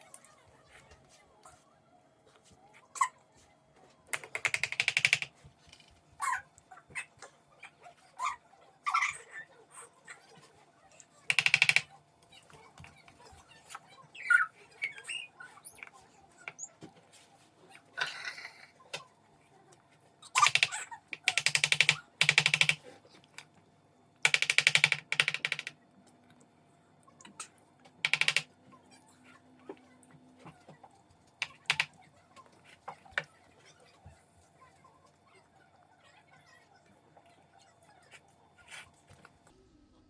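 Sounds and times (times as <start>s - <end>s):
rapid clicking or rattling: 4.2s - 5.3s, 11.3s - 11.9s, 20.4s - 22.8s, 24.2s - 25.7s, 28.0s - 28.5s.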